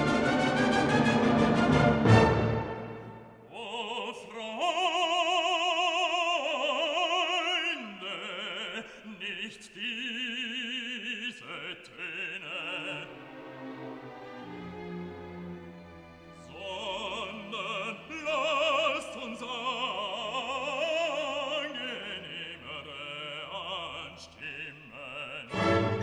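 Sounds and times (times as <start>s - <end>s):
orchestral accompaniment: 0.0s - 3.6s, 12.8s - 19.0s, 25.5s - 26.0s
operatic singing with vibrato: 0.0s - 26.0s.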